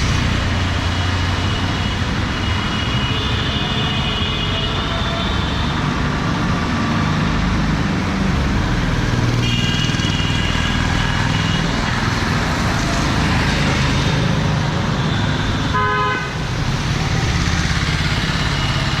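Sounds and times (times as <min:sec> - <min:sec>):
traffic engines running: 0:00.0 - 0:19.0
car horn: 0:09.4 - 0:11.6, 0:15.7 - 0:16.4.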